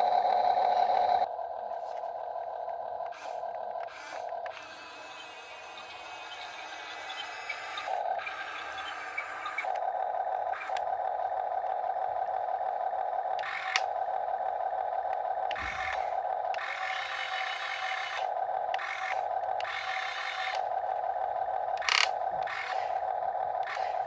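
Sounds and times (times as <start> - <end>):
toy electric motors whining: 3.0 - 24.0.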